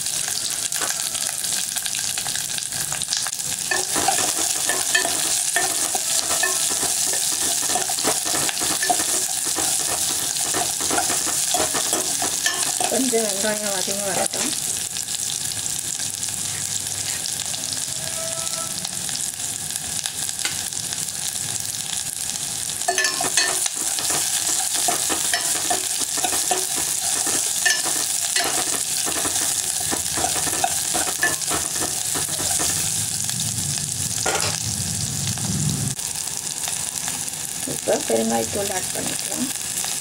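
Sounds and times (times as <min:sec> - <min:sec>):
food sizzling in hot oil: 0:00.0 - 0:40.0
spoon scraping metal pot: 0:03.7 - 0:13.1, 0:22.9 - 0:33.0.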